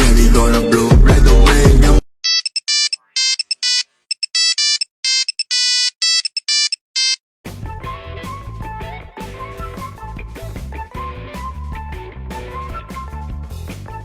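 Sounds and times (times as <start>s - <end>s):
electronic ringtone beeps: 2.2s - 7.2s
band music with guitar and drums: 7.5s - 14.0s.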